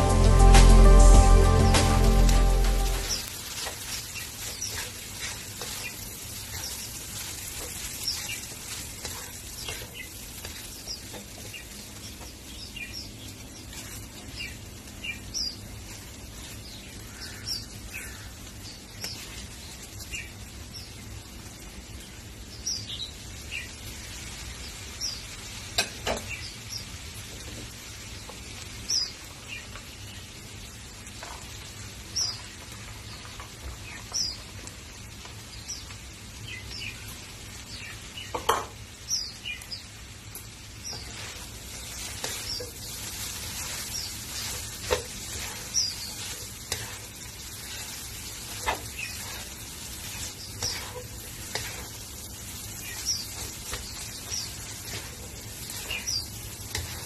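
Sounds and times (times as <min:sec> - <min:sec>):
noodles sizzling in a wok: 0:00.0 - 0:57.0.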